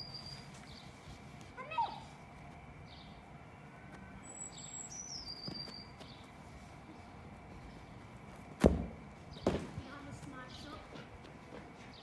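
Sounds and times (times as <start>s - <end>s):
bird singing: 0.0s - 1.0s, 2.8s - 6.3s.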